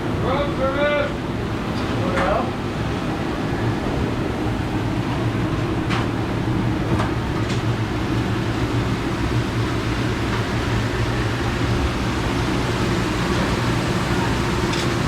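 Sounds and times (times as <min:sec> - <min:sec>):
kitchen machinery humming: 0:05.2 - 0:15.0.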